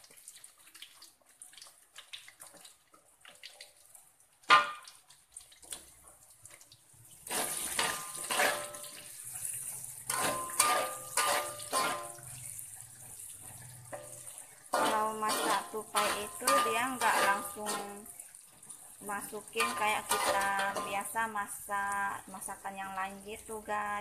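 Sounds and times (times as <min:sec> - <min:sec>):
ginger frying in hot oil: 0:00.0 - 0:24.0
metal spatula scraping wok: 0:07.2 - 0:18.1, 0:19.2 - 0:21.2.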